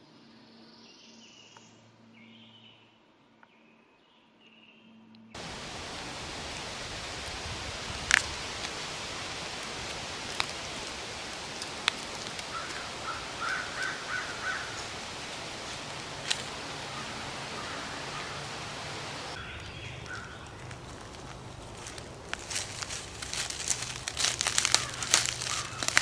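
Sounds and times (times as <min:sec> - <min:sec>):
outdoor background hiss: 0:05.4 - 0:26.0
short chirping calls: 0:08.2 - 0:20.9.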